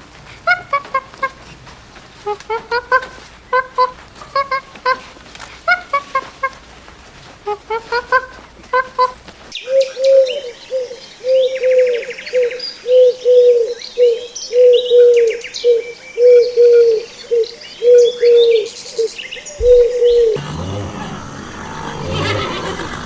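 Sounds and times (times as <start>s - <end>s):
small birds chirping: 7.8s - 23.0s
dove cooing: 9.7s - 18.7s, 19.6s - 23.0s.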